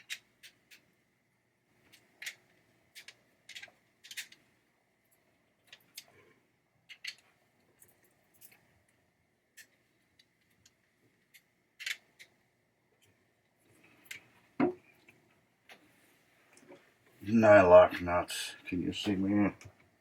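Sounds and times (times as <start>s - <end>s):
small clicks of screws and tool: 6.9s - 8.6s.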